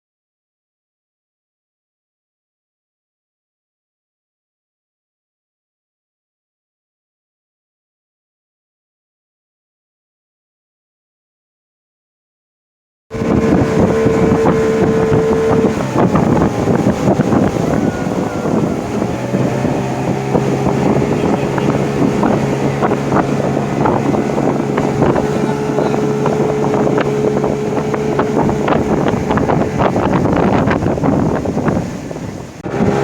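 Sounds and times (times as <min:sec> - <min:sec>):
motorboat engine running: 0:13.1 - 0:33.0
wind buffeting microphone: 0:13.1 - 0:33.0.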